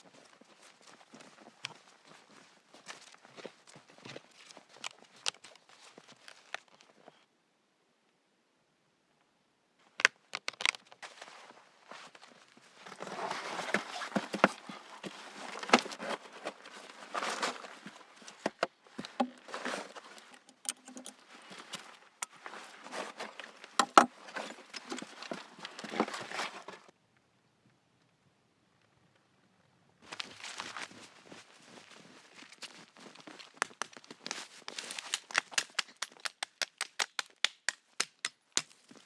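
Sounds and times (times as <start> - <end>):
footsteps crunching on rough ground: 0.0 - 6.9, 30.1 - 36.2.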